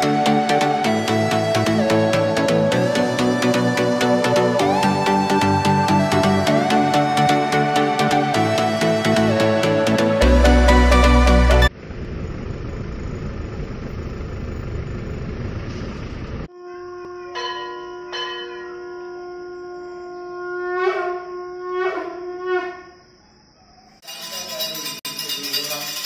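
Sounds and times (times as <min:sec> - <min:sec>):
train whistle long note: 0:16.5 - 0:23.0.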